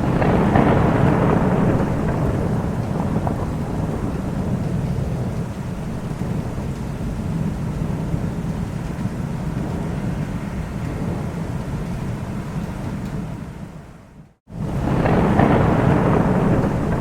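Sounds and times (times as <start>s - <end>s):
rain: 0.0s - 17.0s
thunder rumbling: 0.0s - 17.0s.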